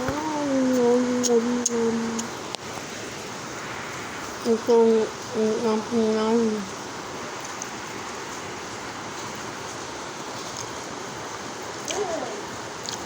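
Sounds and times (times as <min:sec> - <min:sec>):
heavy rain falling: 0:00.0 - 0:13.0
faint voice: 0:11.9 - 0:12.6.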